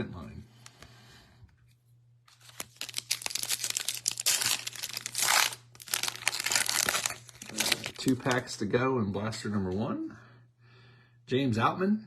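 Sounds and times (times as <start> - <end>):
foil wrapper crinkling and tearing: 2.3 - 8.4.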